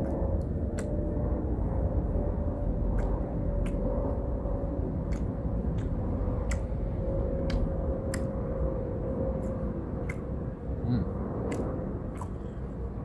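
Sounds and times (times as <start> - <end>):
wet mouth clicks chewing: 0.0 - 1.0, 2.8 - 4.3, 5.0 - 8.5, 9.3 - 10.4, 11.4 - 12.8
faint hum: 0.0 - 13.0
low rumble: 0.0 - 13.0.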